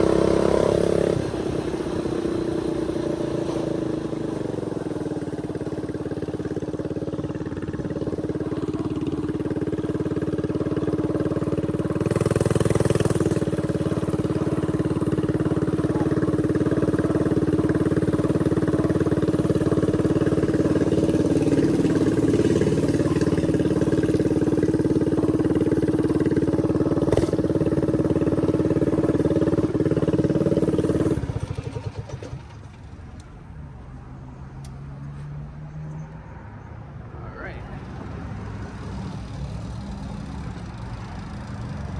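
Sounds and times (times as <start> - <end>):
small bike engine running: 0.0 - 33.0.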